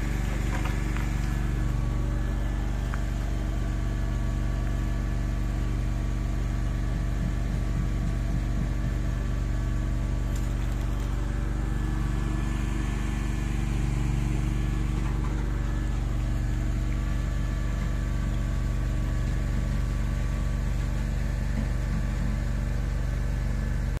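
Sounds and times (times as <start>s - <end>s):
engine-driven machinery running: 0.0s - 24.0s.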